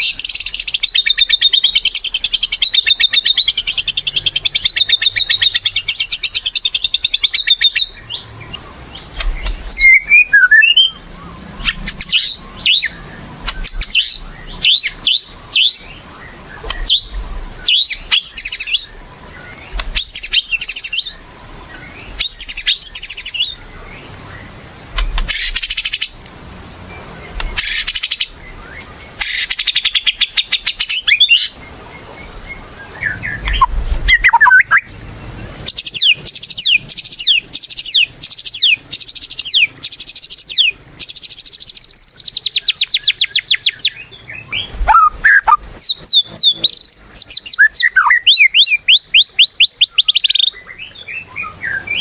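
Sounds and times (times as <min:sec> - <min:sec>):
songbird singing: 0:00.0 - 0:52.0.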